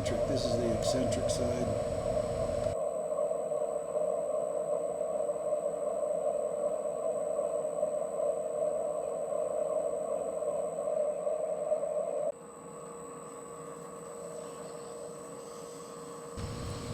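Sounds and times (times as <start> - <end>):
lathe cutting metal: 0.0 - 2.8, 16.4 - 16.9
lathe humming: 0.0 - 2.8, 16.4 - 16.9.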